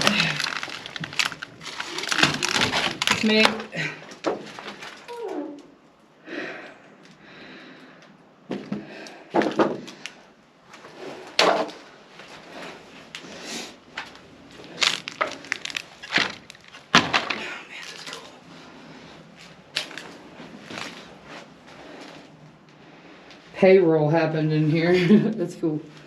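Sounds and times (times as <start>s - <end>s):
sharp knocks and cracks: 0.0s - 5.1s, 8.5s - 10.2s, 11.4s - 11.8s, 14.0s - 18.2s.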